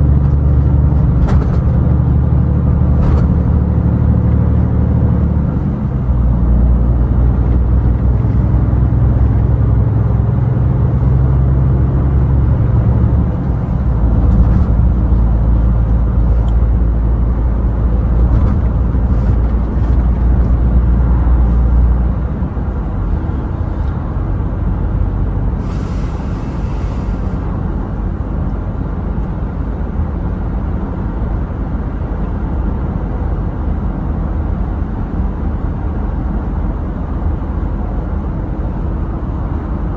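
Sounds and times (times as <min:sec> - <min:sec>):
truck engine drone: 0:00.0 - 0:39.9
short hiss: 0:25.6 - 0:27.4.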